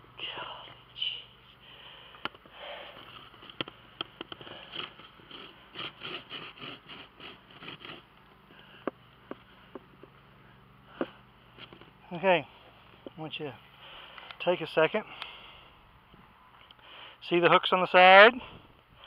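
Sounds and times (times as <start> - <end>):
sharp clicks and knocks: 2.2 - 5.9.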